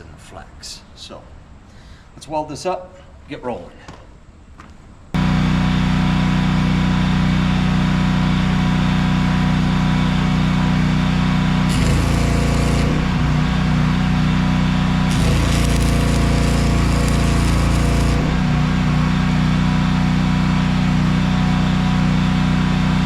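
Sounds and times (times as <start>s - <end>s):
welder hum: 5.2s - 23.0s
welding arc crackle: 11.3s - 19.0s.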